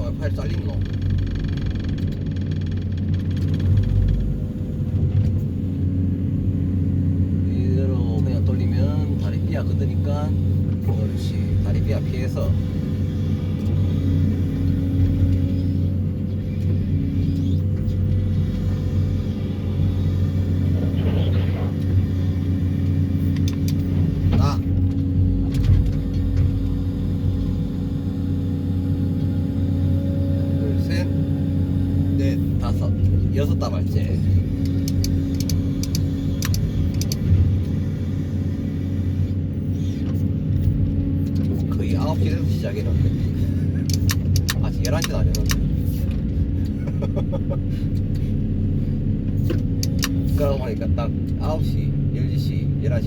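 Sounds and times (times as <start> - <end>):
excavator engine and hydraulics humming: 0.0 - 53.0
sharp clicks: 34.5 - 37.4, 43.8 - 46.2, 49.5 - 50.4.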